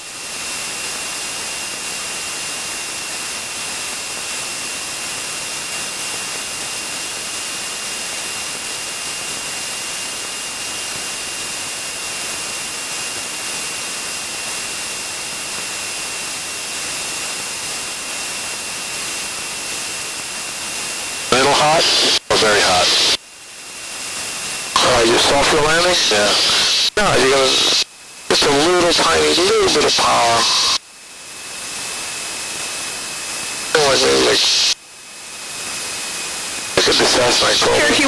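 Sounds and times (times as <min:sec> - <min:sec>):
high constant whine: 0:00.0 - 0:38.0
intercom hiss: 0:21.3 - 0:23.2, 0:24.6 - 0:30.9, 0:33.5 - 0:34.8, 0:36.7 - 0:38.0.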